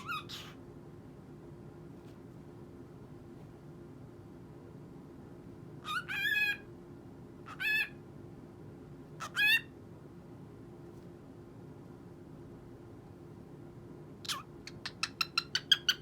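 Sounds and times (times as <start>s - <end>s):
cockatiel calling: 0.0s - 0.6s, 5.8s - 6.7s, 7.4s - 8.0s, 9.2s - 9.7s, 14.2s - 16.0s.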